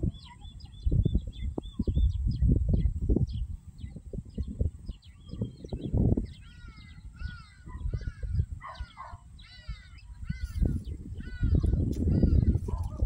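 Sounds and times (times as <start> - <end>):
wind rumble on microphone: 0.0 - 13.0
bird harsh repeated calls: 6.2 - 13.0.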